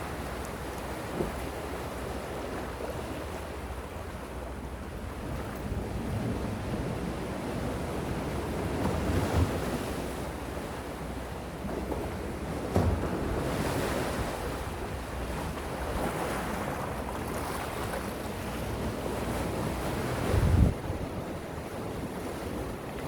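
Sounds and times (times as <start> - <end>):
gentle sea waves washing: 0.0 - 23.0
wind buffeting microphone: 12.7 - 23.0.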